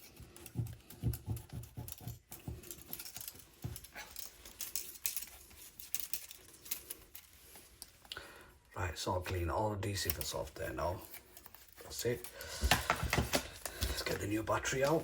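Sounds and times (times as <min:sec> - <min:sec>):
tool scraping adhesive: 0:00.0 - 0:02.9.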